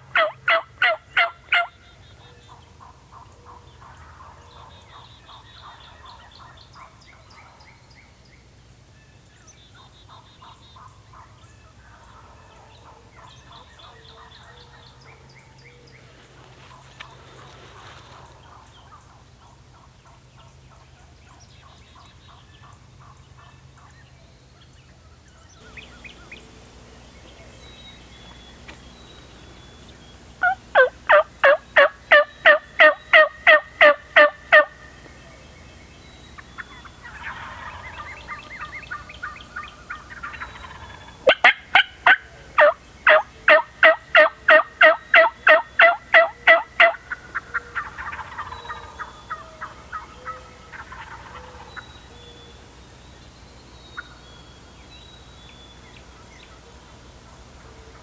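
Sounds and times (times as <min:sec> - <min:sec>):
turkey hen yelping: 0:00.1 - 0:01.8, 0:29.5 - 0:35.0, 0:36.4 - 0:52.1.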